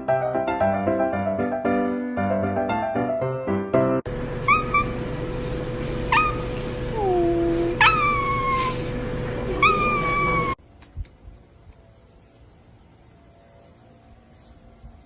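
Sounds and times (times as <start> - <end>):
steady hum: 4.1 - 15.0
young pet crying: 4.5 - 5.0, 6.1 - 9.0, 9.6 - 10.6.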